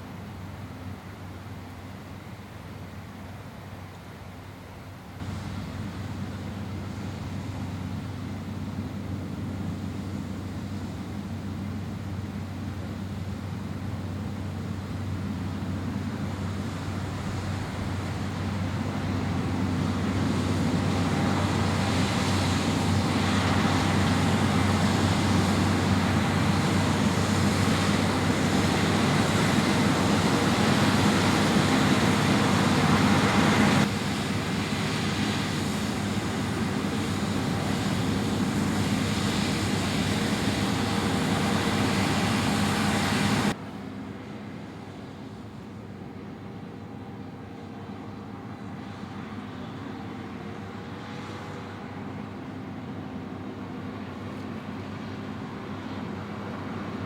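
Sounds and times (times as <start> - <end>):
vehicle engine droning: 5.2 - 45.8.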